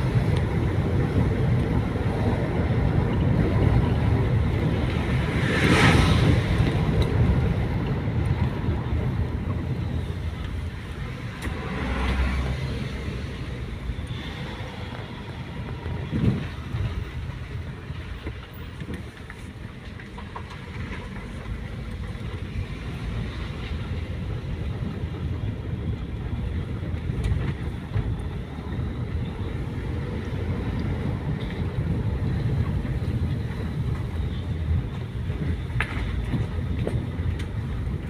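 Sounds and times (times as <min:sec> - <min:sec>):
vehicle rumbling on the move: 0:00.0 - 0:38.0.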